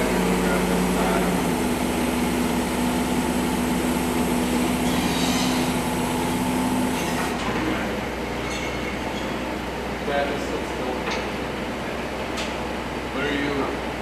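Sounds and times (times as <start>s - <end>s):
machine motor humming: 0.0s - 7.6s.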